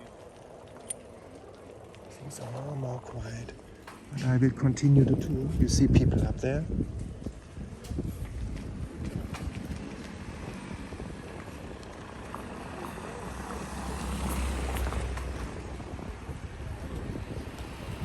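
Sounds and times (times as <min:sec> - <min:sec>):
vehicle engine passing: 0:10.0 - 0:18.0.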